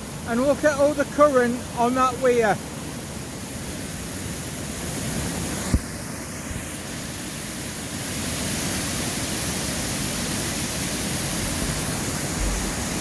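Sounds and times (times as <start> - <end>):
water rushing over weir: 0.0 - 13.0
low thump: 11.6 - 12.8.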